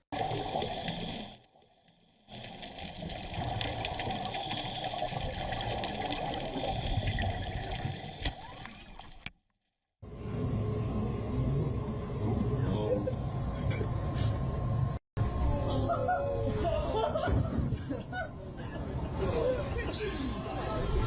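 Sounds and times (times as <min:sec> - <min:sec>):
underwater water rush: 0:00.0 - 0:09.3.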